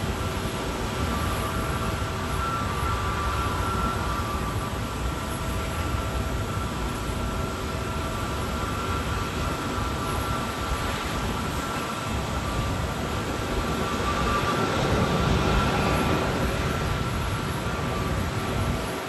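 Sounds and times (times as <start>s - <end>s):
jet engines rushing and whining: 0.0s - 19.0s
wind buffeting microphone: 0.0s - 19.0s.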